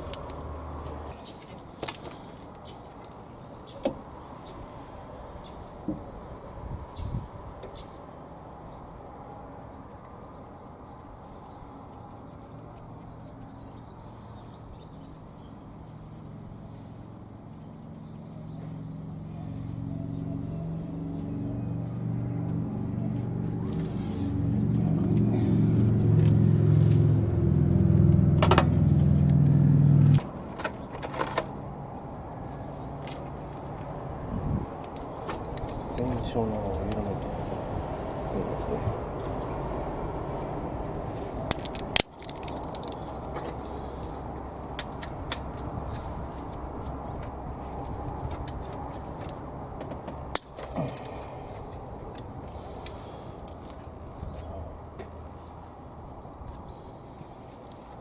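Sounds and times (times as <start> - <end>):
low motor hum: 11.9 - 41.2.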